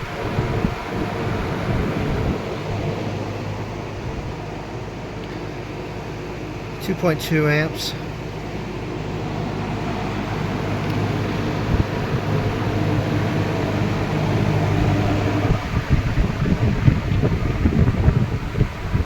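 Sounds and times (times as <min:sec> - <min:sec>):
wind buffeting microphone: 0:00.0 - 0:04.5, 0:10.3 - 0:19.0
air rushing from fan blades: 0:00.0 - 0:19.0
fan motor hum: 0:00.0 - 0:19.0.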